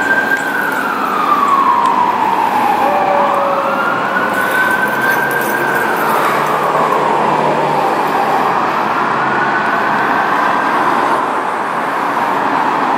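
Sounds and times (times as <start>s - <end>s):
mechanical siren wailing: 0.0s - 10.3s
truck engine and road noise: 0.0s - 12.9s.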